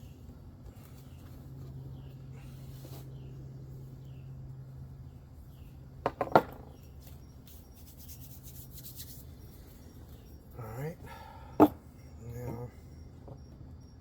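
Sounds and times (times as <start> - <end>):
low steady hum: 0.0 - 14.0
faint bird chirps: 6.6 - 14.0.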